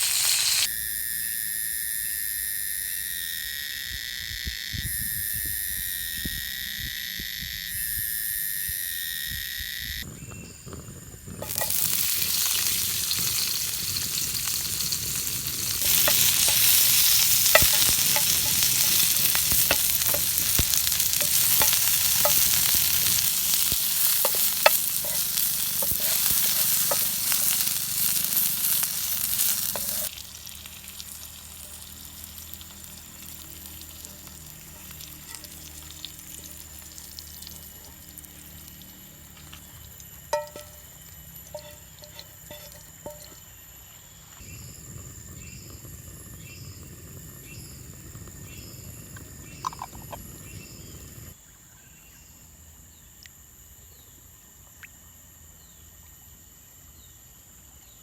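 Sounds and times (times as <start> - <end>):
food sizzling in hot oil: 0.0 - 0.7, 11.4 - 43.6.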